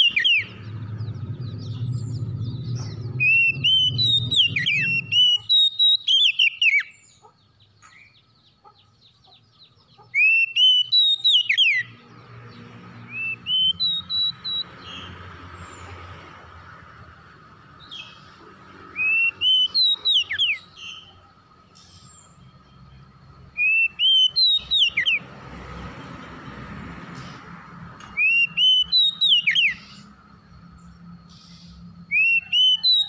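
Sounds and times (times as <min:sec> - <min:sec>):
bird singing whistled phrases: 0:00.0 - 0:00.7, 0:01.6 - 0:07.1, 0:10.1 - 0:11.9, 0:13.1 - 0:14.7, 0:19.0 - 0:21.1, 0:23.6 - 0:25.2, 0:28.1 - 0:30.1, 0:31.3 - 0:33.0.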